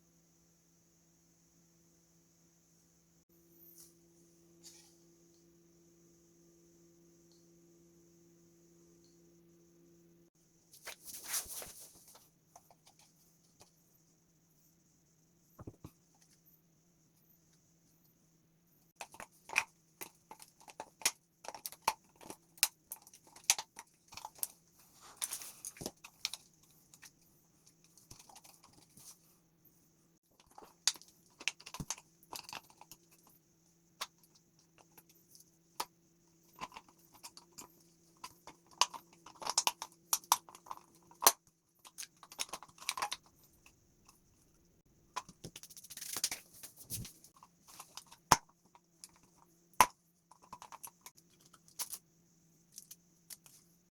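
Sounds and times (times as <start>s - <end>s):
faint steady hum: 0.0s - 53.9s
plastic parts clicking and crunching: 19.0s - 24.6s, 30.4s - 33.3s, 36.5s - 43.3s, 45.2s - 52.0s, 52.7s - 53.6s.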